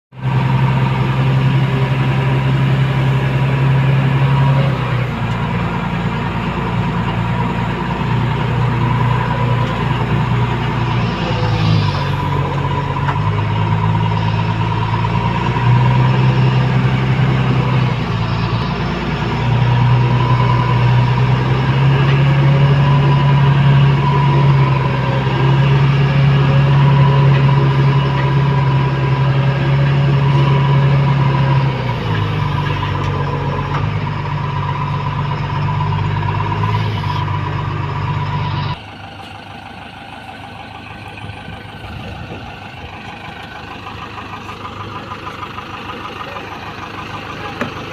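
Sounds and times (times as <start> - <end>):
heavy diesel engine running hard: 0.1 - 47.9
steady high whine: 0.6 - 27.9.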